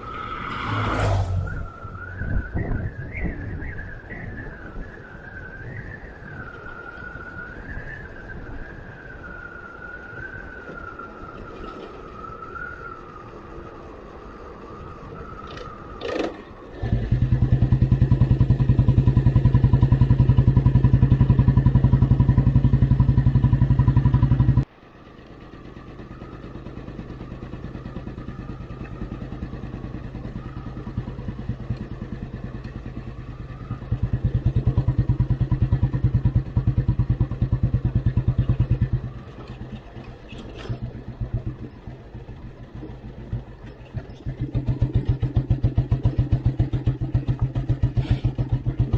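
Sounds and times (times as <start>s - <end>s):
motorcycle engine running: 16.1s - 48.9s
short clatter: 38.3s - 48.9s.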